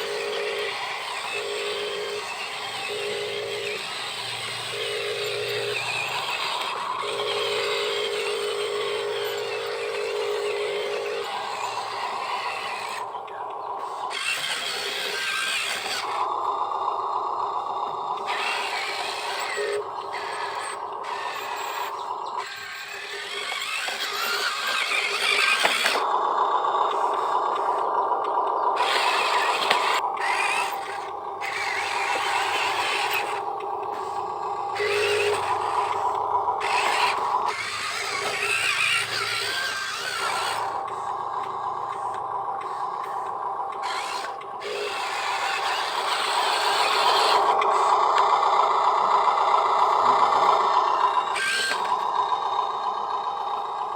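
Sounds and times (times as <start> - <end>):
small electric motors whining: 0.0 - 53.9
gritty scraping: 18.2 - 26.1, 28.8 - 48.0, 49.8 - 52.4.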